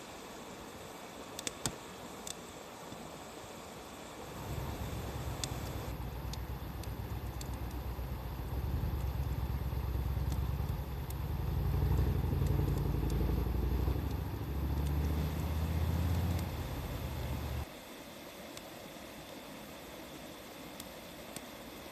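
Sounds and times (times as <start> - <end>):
wood fire crackling: 1.3 - 3.0, 4.2 - 17.7
vehicle engine humming: 4.3 - 17.7.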